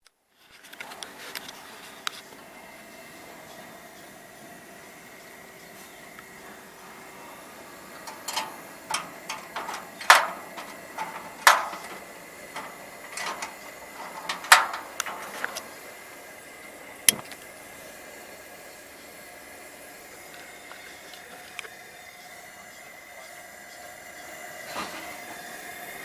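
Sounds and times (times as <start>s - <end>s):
camping stove hissing: 0.2s - 26.0s
sharp clicks and knocks: 8.0s - 15.7s.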